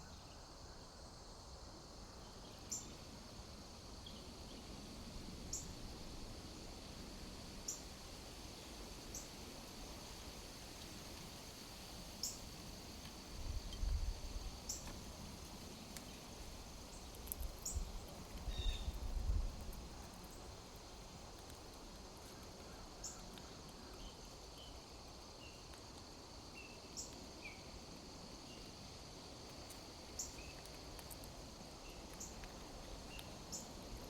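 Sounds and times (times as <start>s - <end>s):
insects droning: 0.0s - 34.0s.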